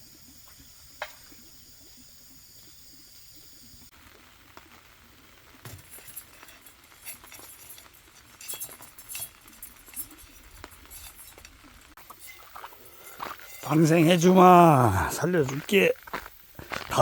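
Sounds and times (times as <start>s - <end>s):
small objects clicking and clinking: 5.6s - 14.4s.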